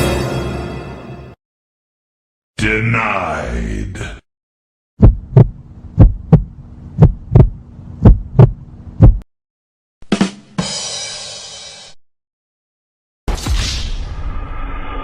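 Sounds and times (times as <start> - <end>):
heartbeat thumps: 5.0 - 9.2.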